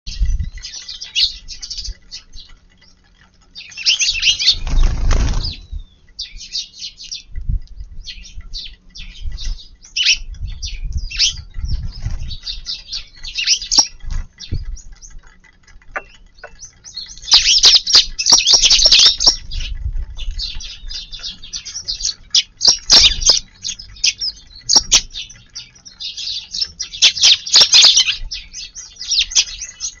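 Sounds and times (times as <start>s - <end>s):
sparrows chirping: 0.1s - 30.0s
flurries of wingbeats: 4.3s - 5.6s.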